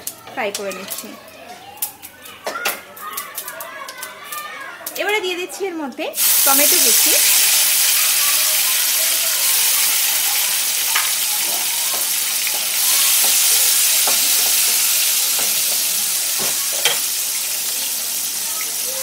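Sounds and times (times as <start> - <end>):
tomatoes sizzling in oil: 0.0 - 1.2, 4.9 - 19.0
spatula tapping pan: 10.9 - 17.1.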